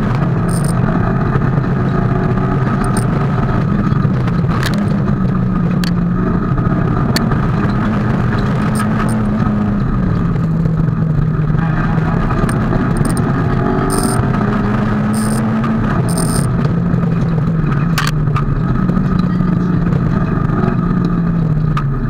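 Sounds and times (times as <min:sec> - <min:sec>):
rally car engine from inside cabin: 0:00.0 - 0:22.0
sharp clicks: 0:00.4 - 0:00.8, 0:02.8 - 0:03.1, 0:12.4 - 0:13.2, 0:13.9 - 0:14.2, 0:15.2 - 0:15.4, 0:16.1 - 0:16.5.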